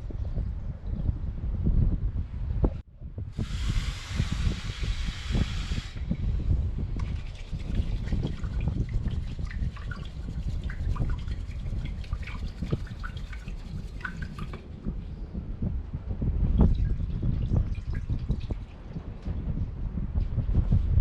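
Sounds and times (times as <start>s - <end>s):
wind on microphone: 0.0s - 21.0s
water sloshing in metal pot: 7.0s - 14.6s
light rubbing noises: 7.0s - 14.7s.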